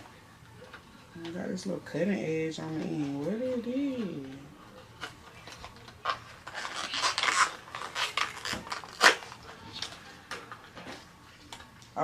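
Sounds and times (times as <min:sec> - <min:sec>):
plastic packaging rustling: 0:02.8 - 0:11.7.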